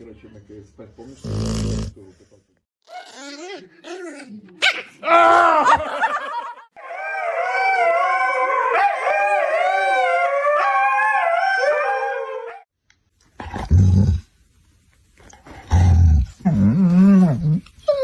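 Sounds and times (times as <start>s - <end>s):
dog howling: 6.8s - 12.7s.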